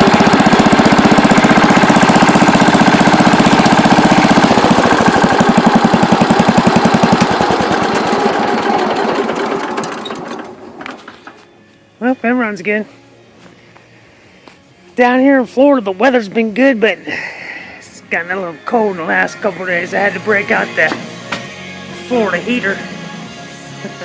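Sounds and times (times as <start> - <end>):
garden tractor engine running: 0.0 - 11.5.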